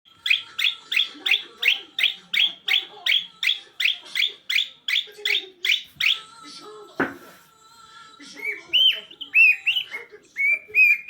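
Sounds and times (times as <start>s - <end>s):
bird chirping sharply: 0.2s - 6.3s.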